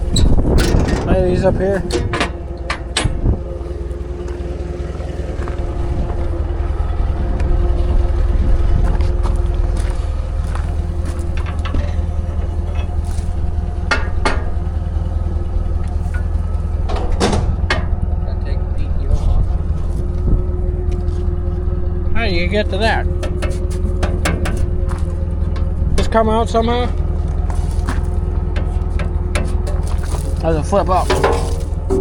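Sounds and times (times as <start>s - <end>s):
metal clanks: 0.0s - 6.5s, 10.2s - 18.2s, 22.9s - 32.0s
farm machinery engine idling: 0.0s - 32.0s.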